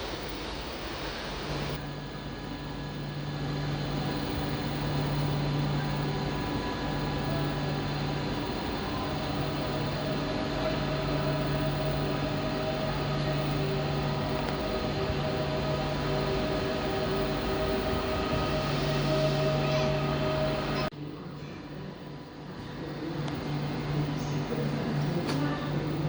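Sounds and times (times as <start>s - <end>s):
train running past: 0.0s - 20.9s
high steady tones: 3.7s - 20.9s.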